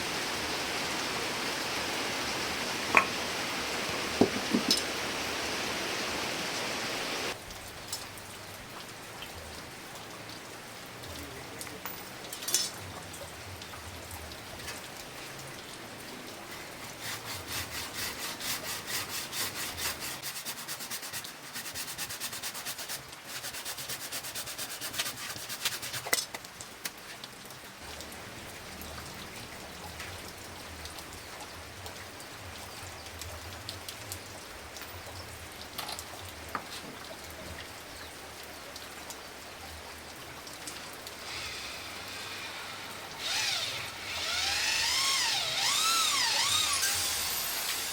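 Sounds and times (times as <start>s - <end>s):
faint steady hiss: 0.0s - 47.9s
rasp filing steel blade: 16.5s - 26.2s.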